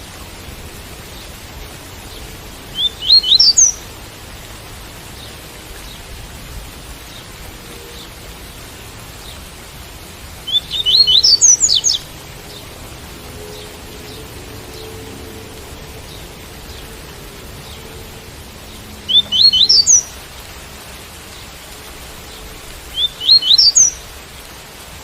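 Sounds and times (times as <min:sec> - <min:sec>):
rain hiss: 0:00.0 - 0:25.0
bird singing quick rising notes: 0:02.8 - 0:03.8, 0:10.5 - 0:12.6, 0:19.0 - 0:20.2, 0:22.9 - 0:24.0.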